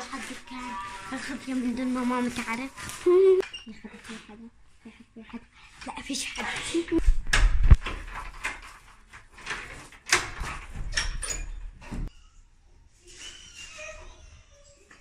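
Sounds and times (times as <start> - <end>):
door clicks and knocks: 7.3 - 12.1.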